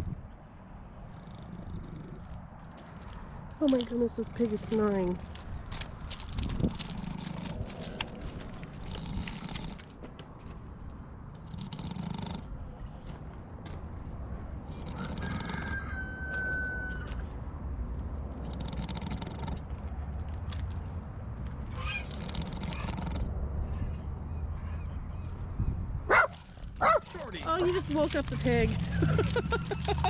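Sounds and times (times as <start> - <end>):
pig snoring: 1.1 - 2.4, 11.4 - 12.6, 14.7 - 15.7, 18.4 - 19.7, 22.2 - 23.3.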